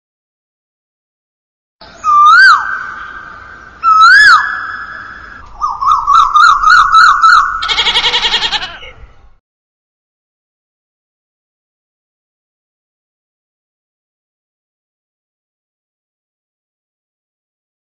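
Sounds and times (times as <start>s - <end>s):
goats bleating: 7.6s - 8.9s.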